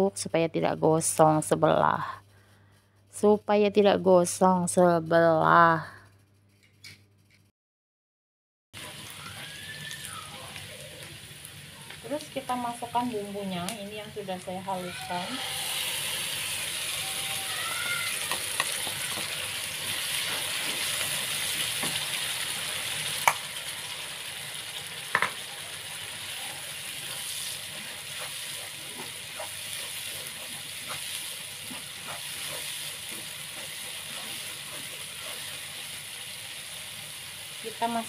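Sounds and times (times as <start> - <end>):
spice paste sizzling in oil: 8.8 - 38.0.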